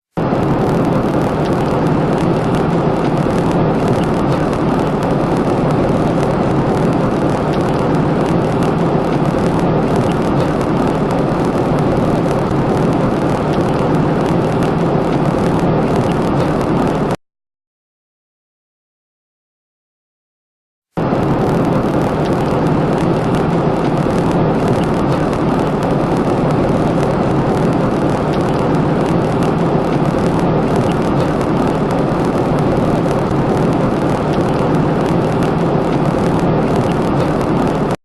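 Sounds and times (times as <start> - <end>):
loud rumbling roar: 21.0 - 38.0.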